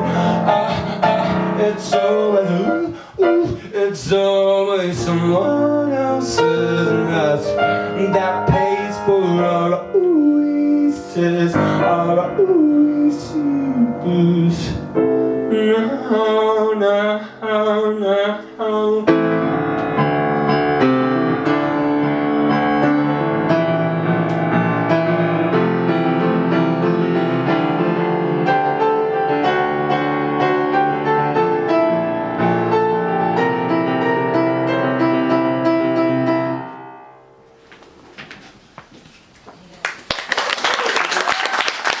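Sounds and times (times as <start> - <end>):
piano chords: 0.0 - 38.1
audience clapping: 39.7 - 42.0.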